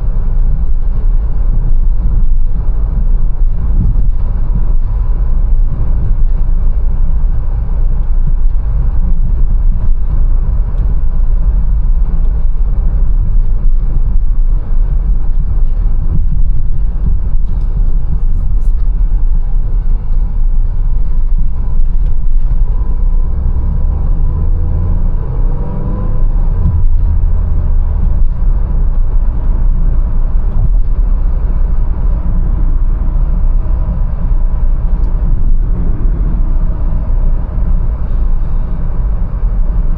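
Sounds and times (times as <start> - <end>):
car engine and road rumble: 0.0 - 39.9
faint rising whine: 22.6 - 29.8.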